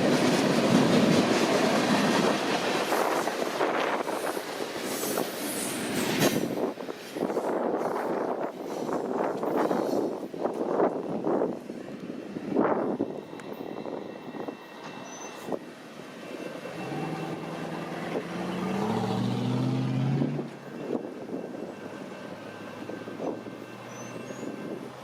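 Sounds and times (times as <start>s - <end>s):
wind noise: 0.0s - 15.7s.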